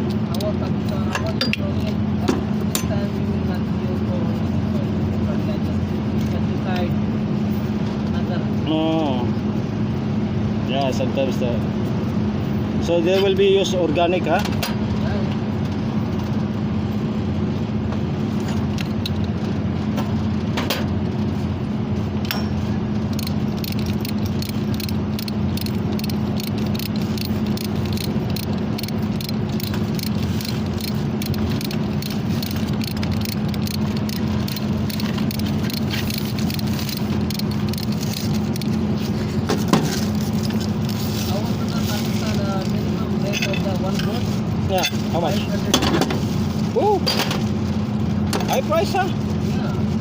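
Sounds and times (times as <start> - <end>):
light rattling and clicking: 0.0 - 6.9, 22.2 - 46.2
low mechanical drone: 0.0 - 50.0.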